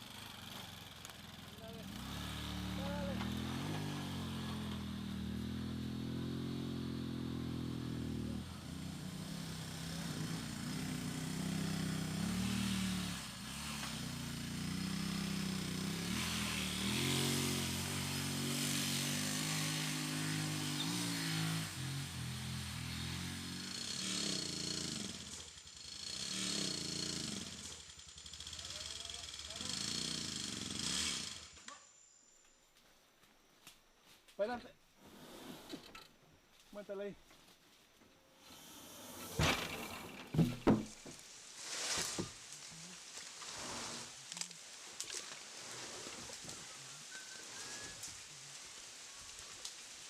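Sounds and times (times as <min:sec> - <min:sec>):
small engine running: 0:00.0 - 0:32.0, 0:38.4 - 0:40.8.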